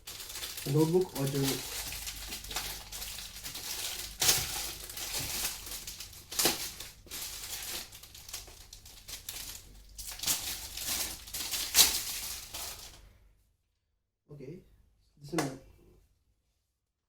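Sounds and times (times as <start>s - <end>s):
wrapping crinkling and rustling: 0.0s - 13.1s.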